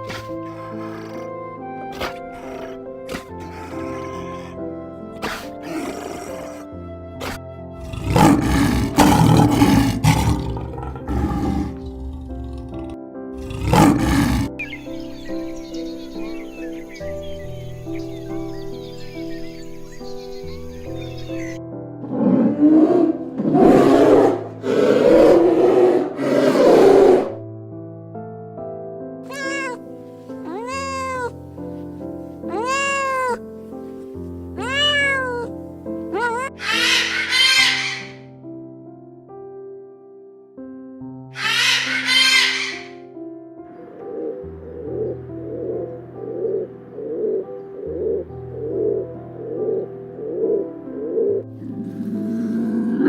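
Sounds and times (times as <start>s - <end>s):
animal roaring: 0.0s - 4.6s, 5.2s - 14.6s, 21.4s - 27.4s, 51.2s - 53.0s
background music: 0.0s - 53.0s
cat meowing: 29.3s - 31.4s, 32.4s - 33.4s, 34.6s - 38.2s.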